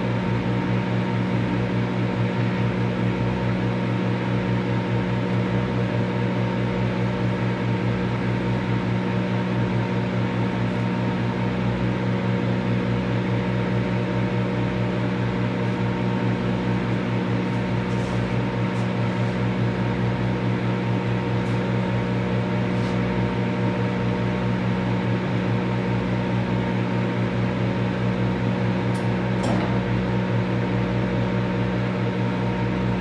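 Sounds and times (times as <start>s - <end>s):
microwave oven humming: 0.0s - 33.0s.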